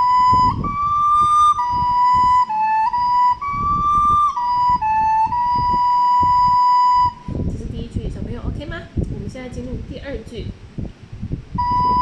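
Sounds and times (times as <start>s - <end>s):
recorder playing slow melody: 0.0s - 7.3s, 11.6s - 12.0s.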